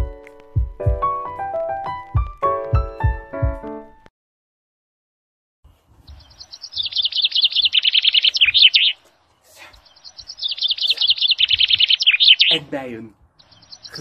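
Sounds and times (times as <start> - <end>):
songbird singing: 6.0 - 14.0.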